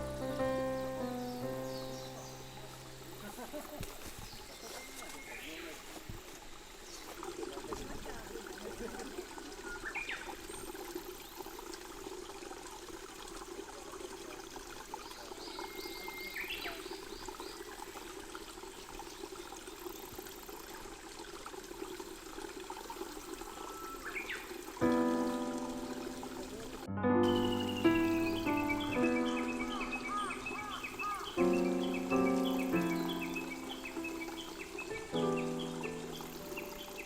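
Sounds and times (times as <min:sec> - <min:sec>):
water trickling: 0:00.0 - 0:37.0
songbird whistling: 0:27.3 - 0:37.0.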